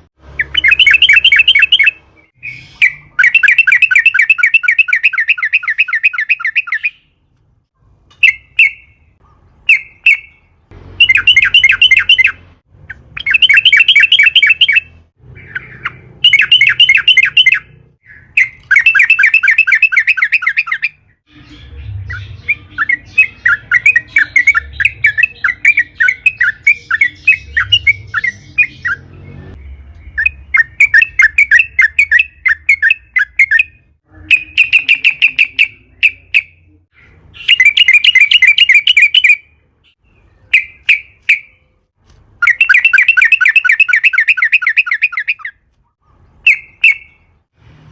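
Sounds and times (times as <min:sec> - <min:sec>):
bird singing bubbling notes: 0:00.4 - 0:07.1.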